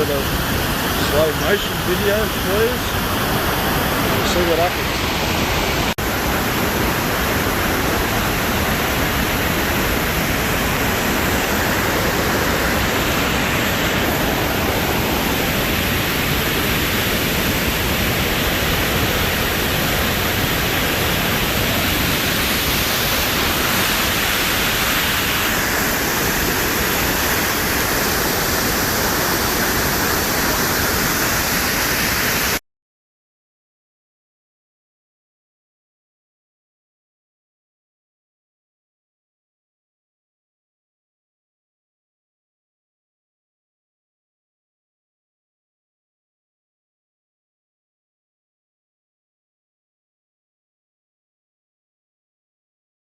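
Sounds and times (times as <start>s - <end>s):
waterfall roaring: 0.0s - 32.6s.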